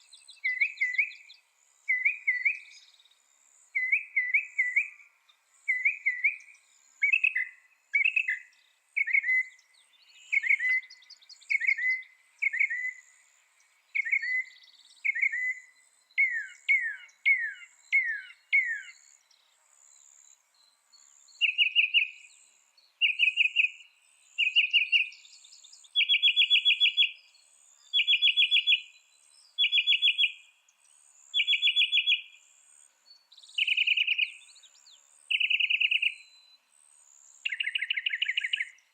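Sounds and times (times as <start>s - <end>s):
mockingbird singing: 0.3s - 2.9s, 3.8s - 5.0s, 5.7s - 13.1s, 14.0s - 19.2s, 21.4s - 22.3s, 23.0s - 28.9s, 29.5s - 30.4s, 31.3s - 32.3s, 33.4s - 36.4s, 37.4s - 38.9s.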